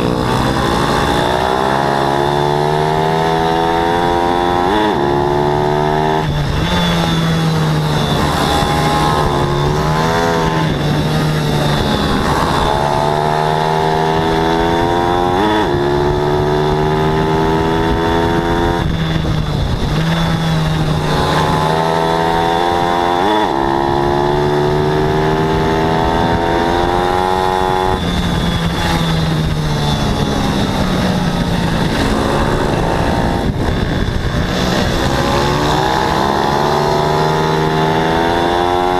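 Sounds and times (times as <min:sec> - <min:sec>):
pit bike engines racing: 0:00.0 - 0:38.9.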